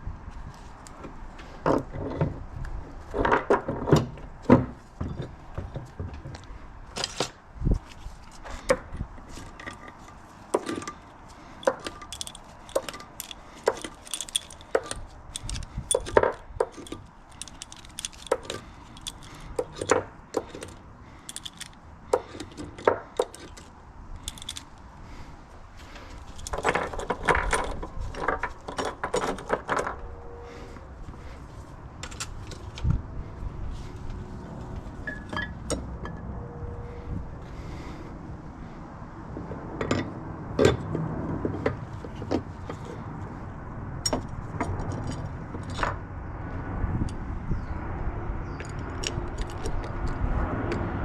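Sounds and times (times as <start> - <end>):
metal tools clinking and knocking: 8.7 - 24.8, 26.1 - 30.0, 35.0 - 36.2, 48.6 - 50.2
quick rattling clicks: 10.6 - 24.8, 26.2 - 29.7.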